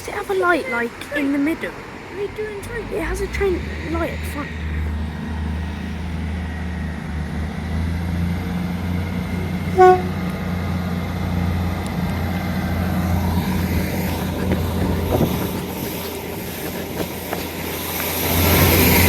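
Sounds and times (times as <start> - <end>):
train rumbling: 0.0 - 19.0
train horn toot: 9.7 - 10.3.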